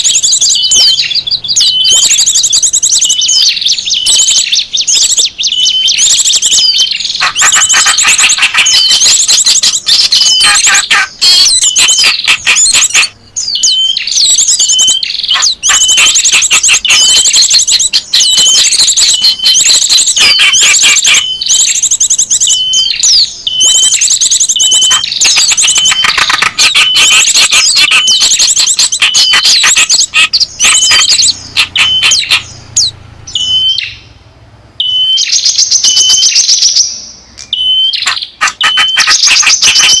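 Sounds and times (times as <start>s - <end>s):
songbirds chirping and trilling: 0.0s - 40.0s
hooked bird call note: 24.6s - 33.8s, 37.5s - 40.0s.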